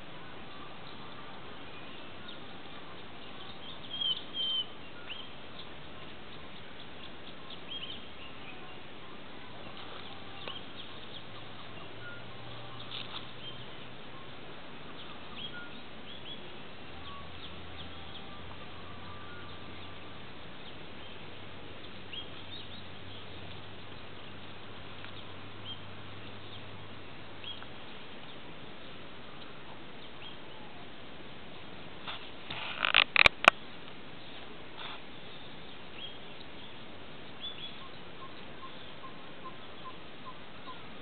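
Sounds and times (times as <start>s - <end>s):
steady background hiss: 0.0s - 41.0s
high bird chirps: 3.2s - 5.7s.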